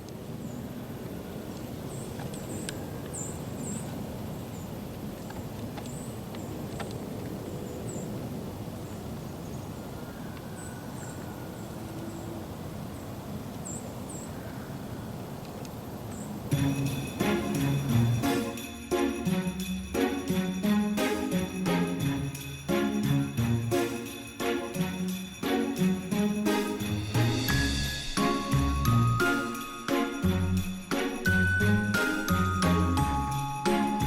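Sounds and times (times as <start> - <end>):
small birds chirping: 0.4 - 17.1
song with sleigh bells: 16.5 - 34.0.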